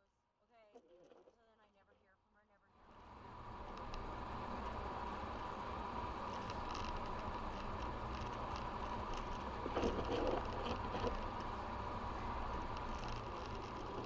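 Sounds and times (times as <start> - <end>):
truck low rumble: 2.8 - 14.0
rustle: 3.0 - 14.0
light ticks: 3.6 - 4.8, 6.2 - 11.6, 12.4 - 14.0.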